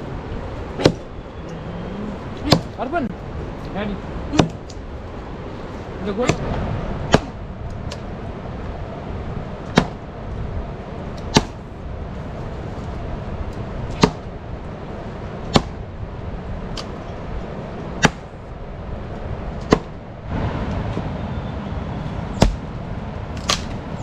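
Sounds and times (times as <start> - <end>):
low background rumble: 0.0 - 24.0
sharp knocks: 9.7 - 10.0, 15.5 - 15.8.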